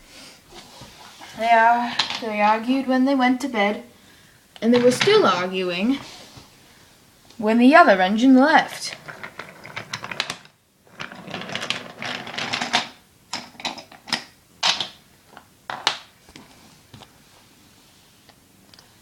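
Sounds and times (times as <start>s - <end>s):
plastic toy train clatter: 8.9s - 14.9s.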